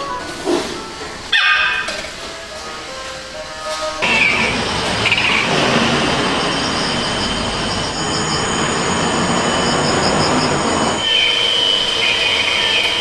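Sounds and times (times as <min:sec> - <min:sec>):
high-pitched whine: 0:04.0 - 0:13.0
loud machine noise: 0:04.0 - 0:13.0.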